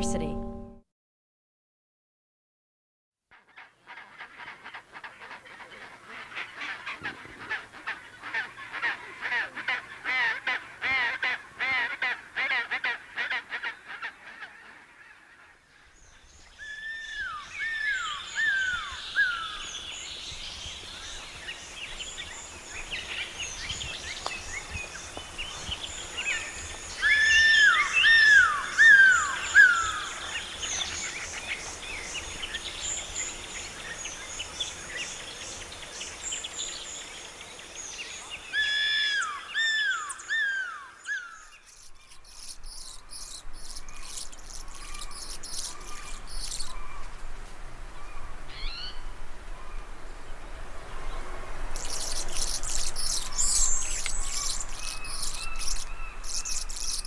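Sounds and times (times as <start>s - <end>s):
birds calling and singing: 15.8s - 47.3s, 51.7s - 57.0s.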